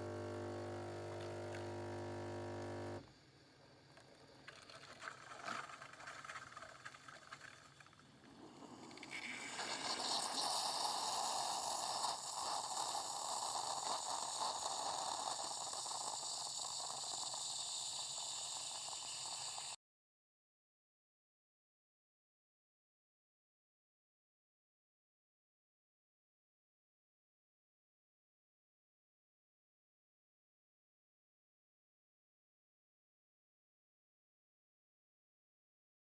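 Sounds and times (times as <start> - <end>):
coffee machine humming: 0.0 - 3.0
liquid hissing and gurgling: 7.7 - 19.8.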